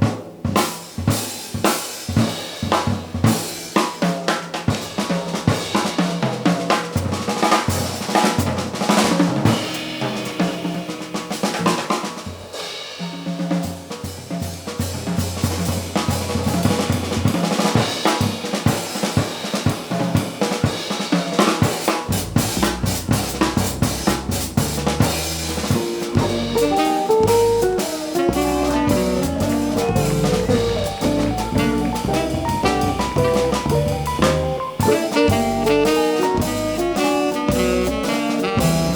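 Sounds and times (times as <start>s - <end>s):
jazz drum kit solo: 0.0s - 38.9s
jazz band playing: 7.3s - 14.3s, 14.9s - 38.9s
bass line: 26.1s - 38.9s.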